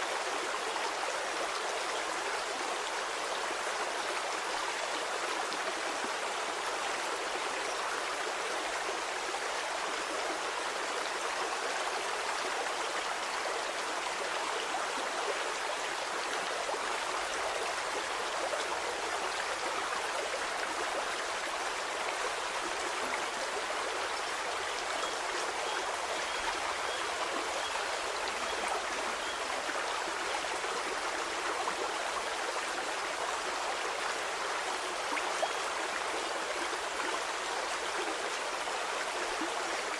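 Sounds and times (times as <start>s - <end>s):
stream water babbling: 0.0s - 39.9s.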